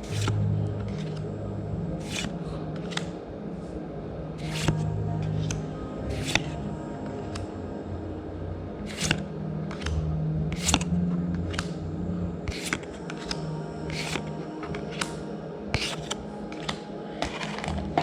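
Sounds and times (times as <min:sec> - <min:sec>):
cards swishing and snapping: 0:00.0 - 0:01.3, 0:02.0 - 0:03.2, 0:04.4 - 0:06.6, 0:08.8 - 0:11.8, 0:12.4 - 0:18.0
low steady hum: 0:00.0 - 0:18.0.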